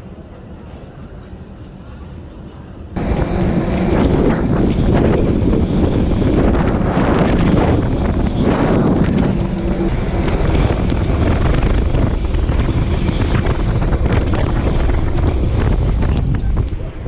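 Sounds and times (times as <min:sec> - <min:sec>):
wind buffeting microphone: 0:03.0 - 0:17.0.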